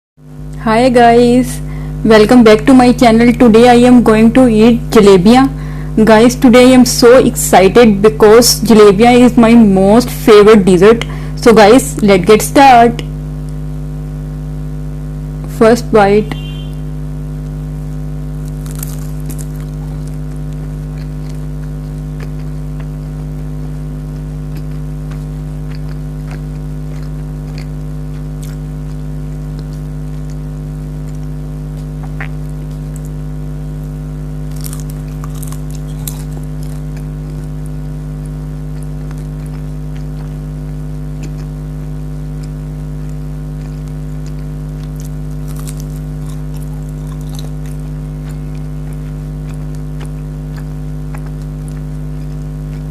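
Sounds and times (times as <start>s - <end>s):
loud steady hum: 0.2s - 52.9s
crunching and chewing: 17.4s - 52.9s.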